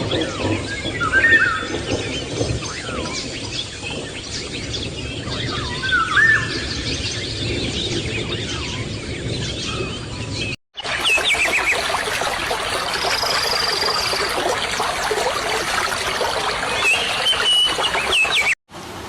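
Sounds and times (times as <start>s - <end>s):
birds singing and chirping: 0.0s - 18.6s
whistled bird phrase: 10.8s - 18.6s.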